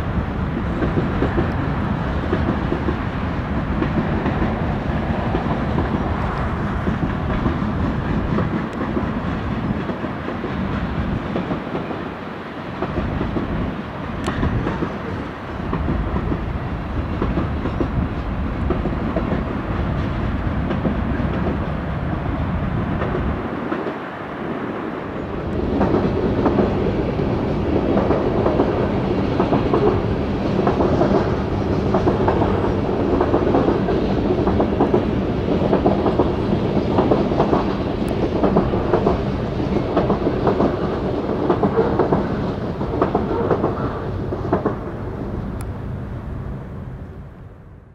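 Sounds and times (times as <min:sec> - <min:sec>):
freight cars rumbling on track: 0:25.2 - 0:46.8.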